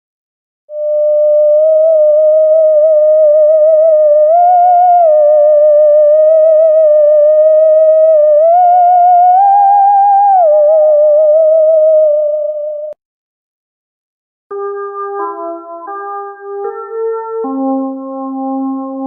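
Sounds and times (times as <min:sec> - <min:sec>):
synthesizer lead with vibrato: 0:14.5 - 0:19.0.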